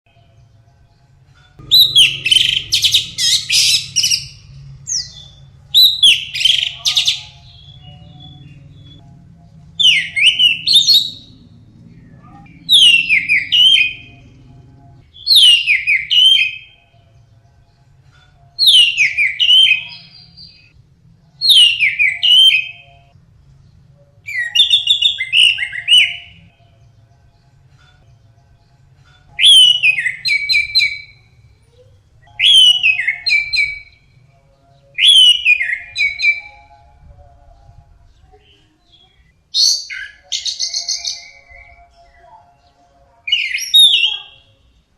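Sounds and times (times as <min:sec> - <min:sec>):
bird singing whistled phrases: 0:29.4 - 0:31.2, 0:32.3 - 0:34.0, 0:35.0 - 0:36.8, 0:43.3 - 0:44.5.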